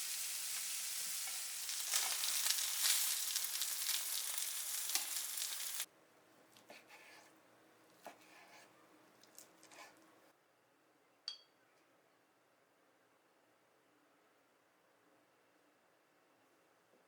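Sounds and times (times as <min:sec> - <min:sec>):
food sizzling in a pan: 0:00.0 - 0:05.9
scraping strokes in a pan: 0:06.7 - 0:07.4, 0:08.0 - 0:08.8.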